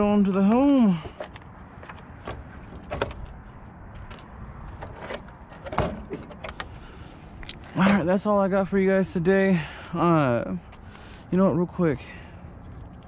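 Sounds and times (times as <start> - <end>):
handling clicks and knocks: 0.1 - 6.8.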